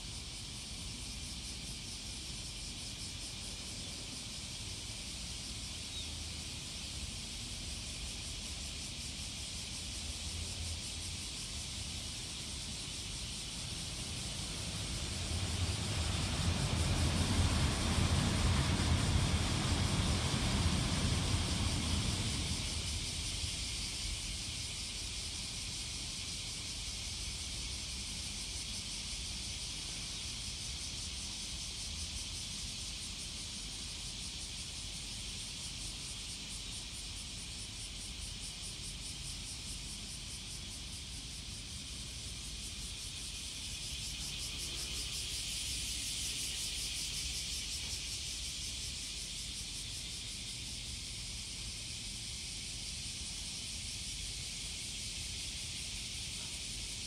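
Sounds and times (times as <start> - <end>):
steady high hiss: 0.0 - 57.0
high-speed train rumble: 0.1 - 57.0.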